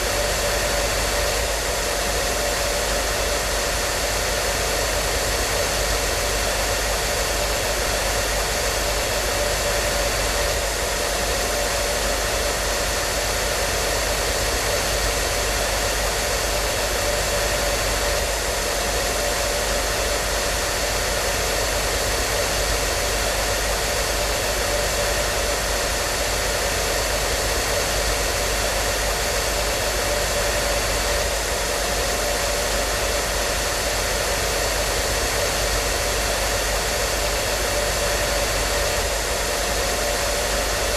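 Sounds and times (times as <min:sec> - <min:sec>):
hair dryer blowing: 0:00.0 - 0:40.9.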